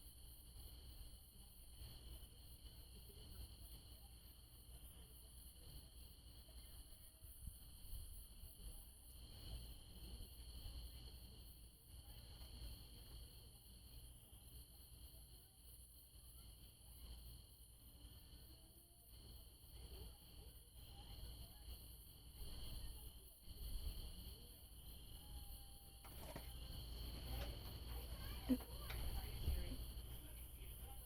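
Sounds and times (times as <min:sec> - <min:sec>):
night insects trilling: 0:00.0 - 0:31.0.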